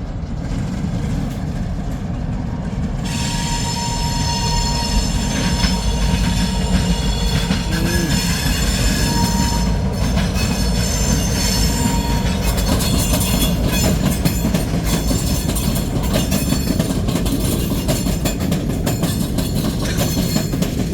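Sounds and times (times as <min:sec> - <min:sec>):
freight train rumbling past: 0:00.0 - 0:20.9
wheels clicking over rail joints: 0:00.1 - 0:20.9
high wheel squeal: 0:03.1 - 0:16.7.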